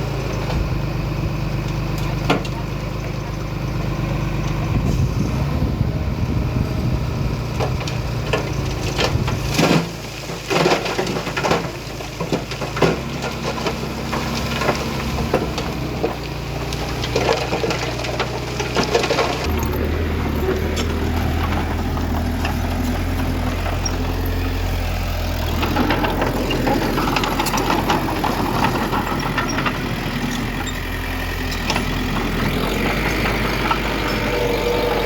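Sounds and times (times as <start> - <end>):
diesel engine under load: 0.0 - 35.0
cracks and crunches of debris: 7.4 - 35.0.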